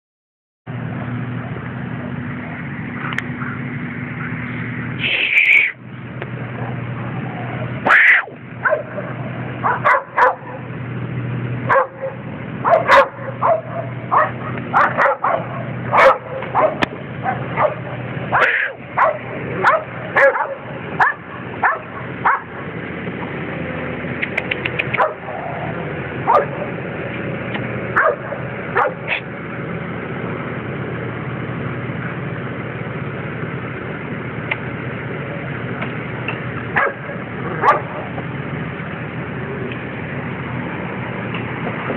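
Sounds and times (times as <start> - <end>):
steady low hum: 0.7 - 41.9
dogs barking and yipping: 6.5 - 10.8, 11.5 - 22.9, 24.2 - 26.8, 27.8 - 29.3, 36.6 - 38.4.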